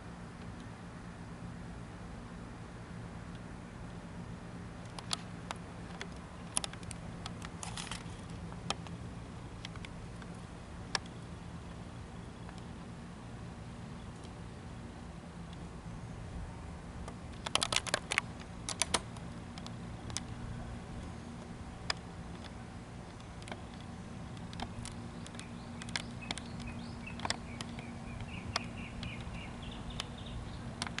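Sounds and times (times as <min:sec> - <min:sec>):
steady low hum: 0:00.0 - 0:31.0
sharp clicks: 0:04.8 - 0:09.0, 0:17.0 - 0:20.4, 0:21.0 - 0:31.0.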